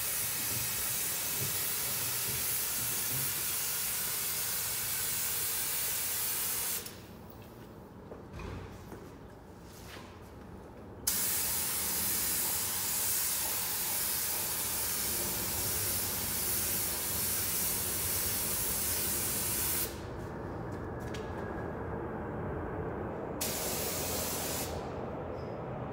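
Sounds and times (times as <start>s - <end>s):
paint spray gun hissing: 11.1s - 19.9s, 23.4s - 24.8s.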